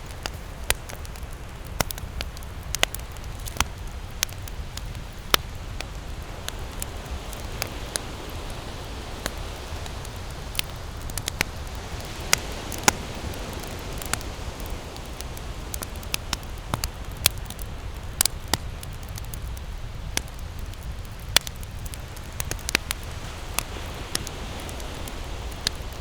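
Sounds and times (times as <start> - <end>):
campfire crackling and popping: 0.0 - 26.0
low rush of flame: 0.0 - 26.0.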